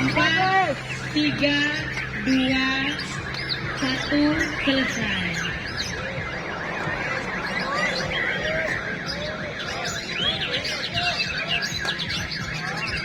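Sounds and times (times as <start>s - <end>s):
birds singing in chorus: 0.0s - 13.0s.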